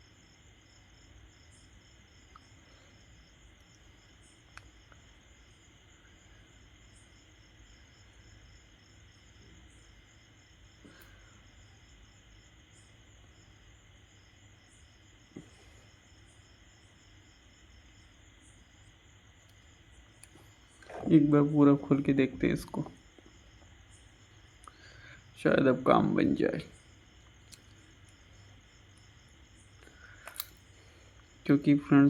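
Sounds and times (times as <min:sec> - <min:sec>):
light clicks: 0:27.2 - 0:28.2, 0:30.1 - 0:30.8.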